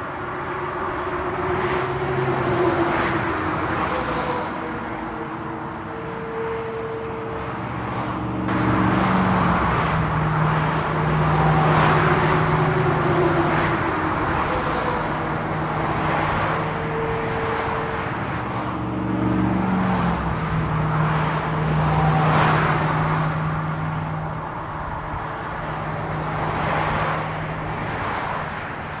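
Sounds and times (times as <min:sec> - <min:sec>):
highway traffic rush: 0:00.0 - 0:29.0
low engine drone: 0:03.8 - 0:26.5.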